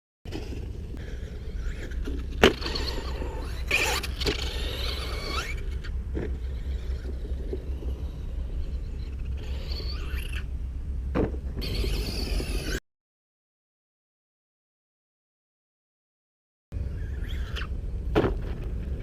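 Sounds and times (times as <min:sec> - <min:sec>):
steady low rumble: 0:00.3 - 0:11.8, 0:16.7 - 0:19.0
toy truck motor whining: 0:01.0 - 0:10.5, 0:11.6 - 0:12.8, 0:16.8 - 0:17.7.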